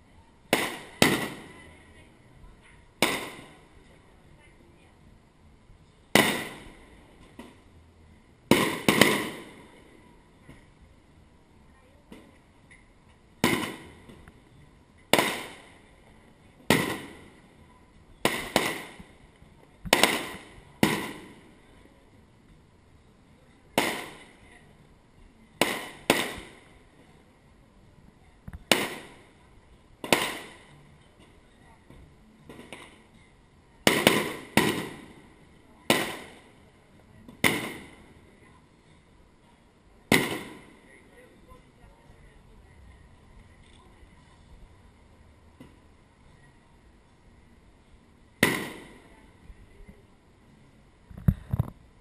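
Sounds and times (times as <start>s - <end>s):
fireworks bursting with echo: 0.5s - 2.1s, 2.9s - 3.9s, 6.1s - 7.7s, 8.5s - 10.8s, 13.4s - 14.4s, 15.1s - 17.6s, 18.2s - 21.8s, 23.7s - 24.5s, 25.6s - 27.0s, 28.5s - 29.4s, 30.0s - 31.4s, 32.4s - 33.1s, 33.8s - 38.2s, 40.0s - 41.1s, 48.4s - 49.2s.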